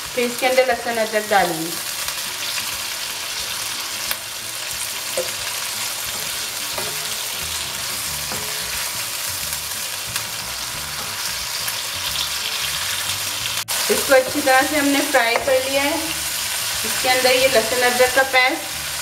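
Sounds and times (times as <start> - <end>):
food sizzling in hot oil: 0.0 - 19.0
spatula stirring and tapping pan: 5.1 - 9.1, 13.9 - 15.7.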